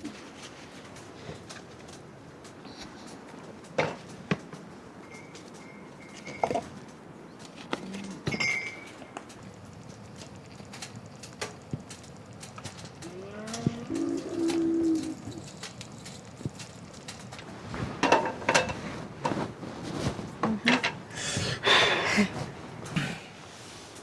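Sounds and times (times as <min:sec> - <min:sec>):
utensils and cookware clattering: 0:00.0 - 0:23.0
steady background hiss: 0:00.0 - 0:24.0
short metallic rings: 0:08.3 - 0:09.0.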